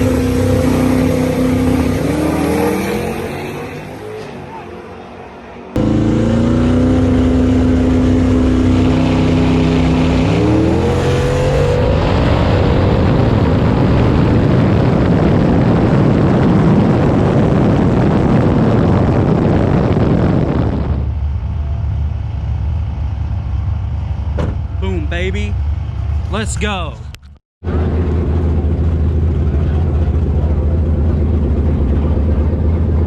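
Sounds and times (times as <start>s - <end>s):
drag car engine revving: 0.0s - 4.6s, 5.8s - 15.2s.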